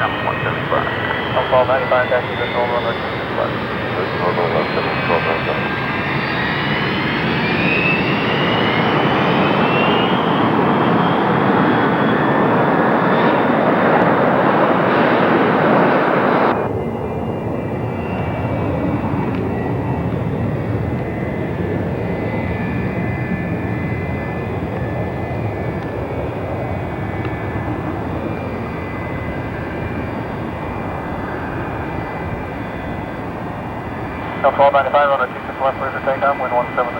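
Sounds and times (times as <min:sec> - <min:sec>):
jet engine whine: 0:00.0 - 0:36.9
jet engines roaring: 0:00.0 - 0:36.9.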